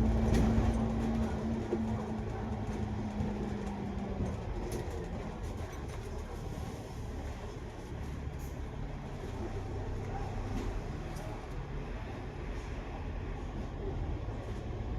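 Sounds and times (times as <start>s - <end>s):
engine and drivetrain drone: 0.0s - 6.0s
bus cabin rumble: 0.0s - 14.9s.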